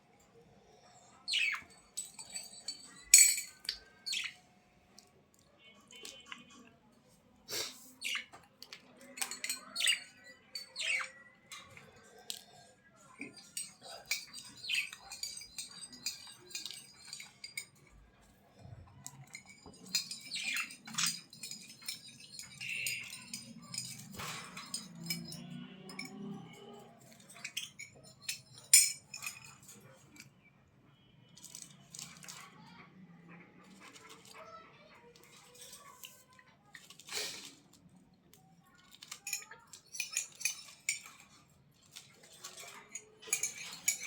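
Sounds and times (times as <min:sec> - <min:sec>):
small birds chirping: 0:00.6 - 0:04.9, 0:07.5 - 0:30.6.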